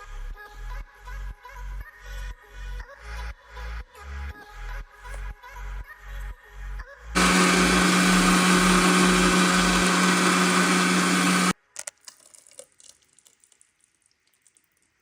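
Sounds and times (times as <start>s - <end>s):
mixer grinder running: 7.2s - 11.5s.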